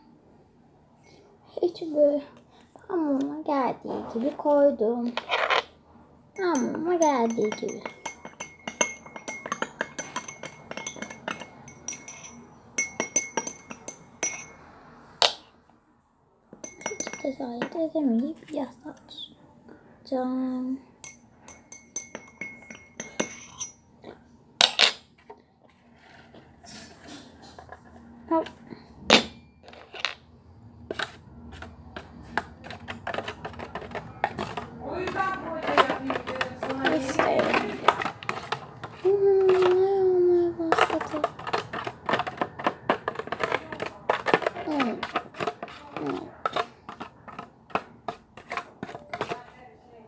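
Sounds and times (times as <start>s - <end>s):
spoon tapping against a bowl: 6.4s - 14.6s, 16.6s - 17.8s, 21.0s - 23.8s
spoon clinking against a container: 6.4s - 14.7s, 16.6s - 18.0s, 21.0s - 23.9s, 32.0s - 39.8s, 40.7s - 48.2s.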